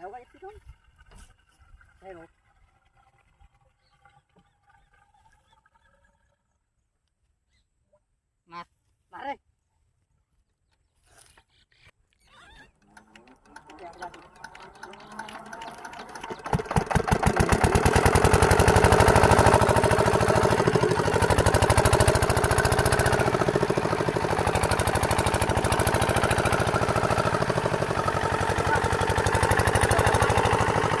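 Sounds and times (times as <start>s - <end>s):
diesel water pump engine running: 0.0s - 6.3s, 12.7s - 31.0s.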